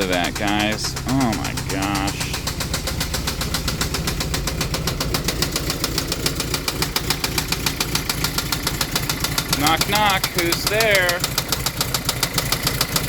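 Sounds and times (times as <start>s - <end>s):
engine running with rapid knock: 0.0s - 13.0s.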